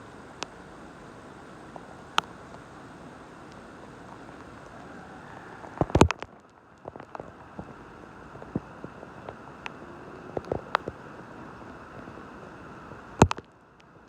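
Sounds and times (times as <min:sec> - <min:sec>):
rain hiss: 0:00.0 - 0:14.0
raindrops tapping: 0:03.4 - 0:12.2, 0:13.2 - 0:13.9.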